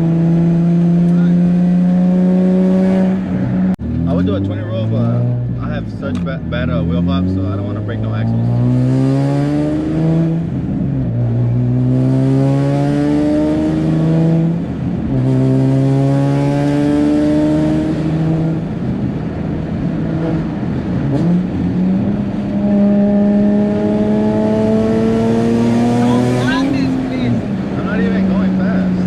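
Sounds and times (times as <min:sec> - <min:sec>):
car engine accelerating through gears: 0:00.0 - 0:29.0.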